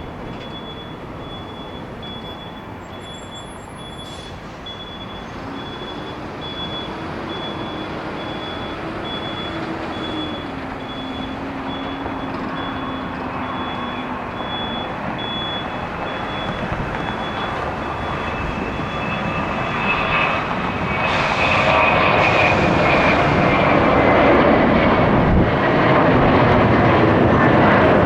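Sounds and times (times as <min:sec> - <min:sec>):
jet engines rumbling: 0:00.0 - 0:28.0
short high beep: 0:00.3 - 0:19.8.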